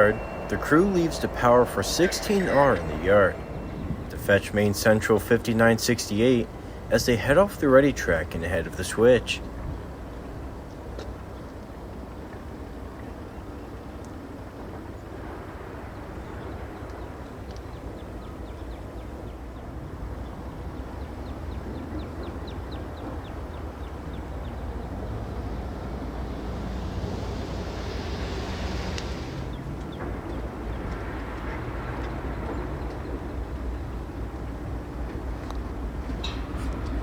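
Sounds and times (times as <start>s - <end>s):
diesel locomotive engine rumble: 0.0s - 13.0s, 20.8s - 37.0s.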